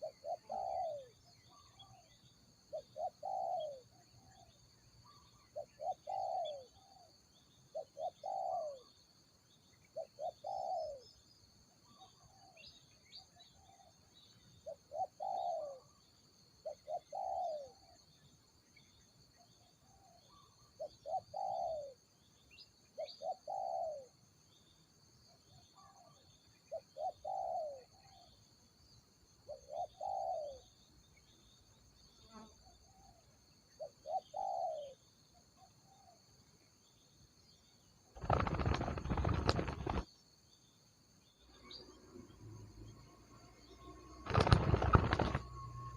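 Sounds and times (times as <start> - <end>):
dove cooing: 0.0 - 1.2, 2.7 - 3.9, 5.6 - 7.0, 7.7 - 8.9, 10.0 - 11.0, 14.6 - 15.8, 16.6 - 17.8, 20.8 - 22.0, 23.0 - 24.1, 26.7 - 27.9, 29.5 - 30.6, 33.8 - 35.0, 38.2 - 40.0, 44.3 - 45.6.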